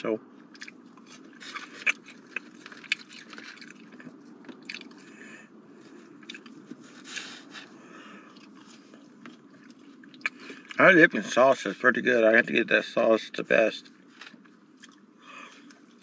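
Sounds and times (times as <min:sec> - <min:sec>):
steady low hum: 0:00.0 - 0:16.0
chewing and biting food: 0:00.4 - 0:10.8, 0:13.9 - 0:16.0.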